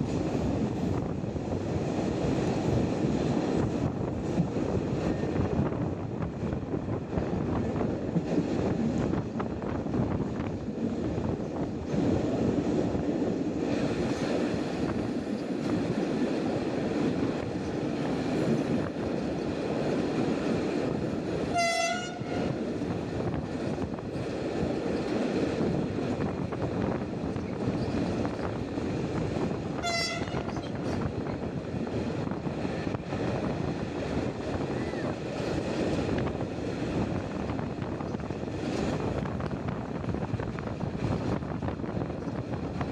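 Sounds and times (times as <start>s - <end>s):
train wheels rumbling and clattering: 0.0s - 42.9s
train horn blast: 21.5s - 22.6s, 29.8s - 30.8s.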